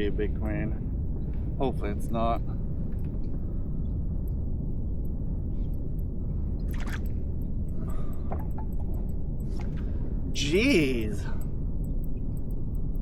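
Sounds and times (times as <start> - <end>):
faint ticks: 11.2 - 13.0.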